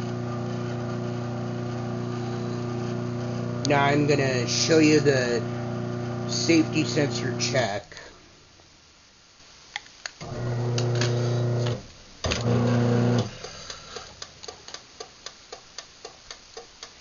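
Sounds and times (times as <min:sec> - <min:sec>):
garage door opener humming: 0:10.2 - 0:13.5.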